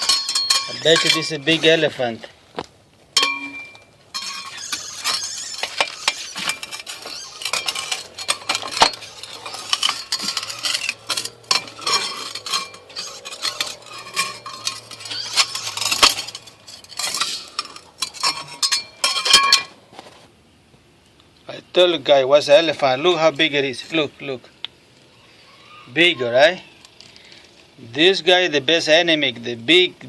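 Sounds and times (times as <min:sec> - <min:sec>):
metal clattering and scraping: 0:00.0 - 0:02.4, 0:03.1 - 0:20.3.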